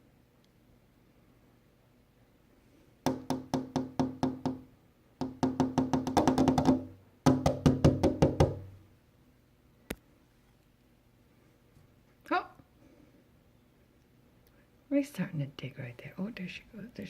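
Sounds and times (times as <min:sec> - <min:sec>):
wood-block-like percussive notes: 0:05.2 - 0:08.6.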